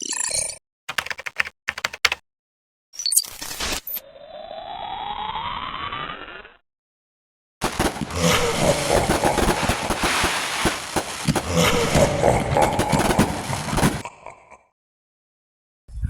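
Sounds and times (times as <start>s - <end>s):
firework hissing and crackling: 7.6s - 14.0s.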